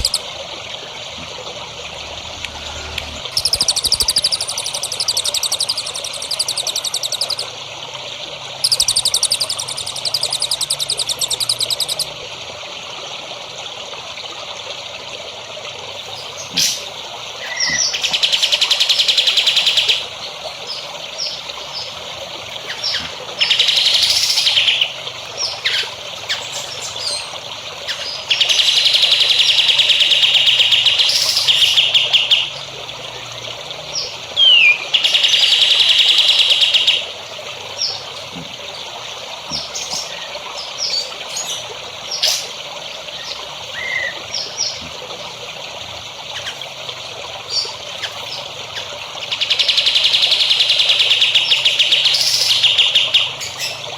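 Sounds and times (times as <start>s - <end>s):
bird chirps: 0.0s - 0.2s, 3.3s - 7.5s, 8.6s - 12.1s, 16.1s - 22.0s, 22.6s - 32.6s, 34.0s - 37.1s
songbirds trilling: 0.0s - 1.1s, 2.6s - 7.6s, 8.5s - 12.2s, 16.0s - 53.9s
trickle of water: 0.0s - 53.9s.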